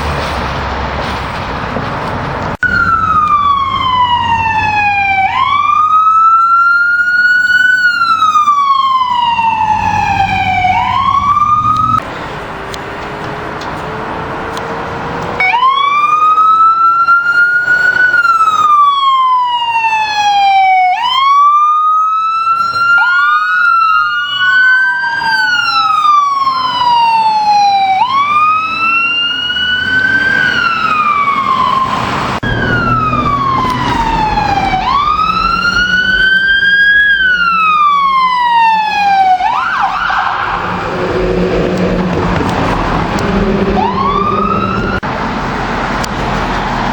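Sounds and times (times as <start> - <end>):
emergency siren wailing: 2.5 - 46.9
second siren: 2.6 - 12.0, 15.4 - 45.1
vehicle engine running: 40.4 - 46.6.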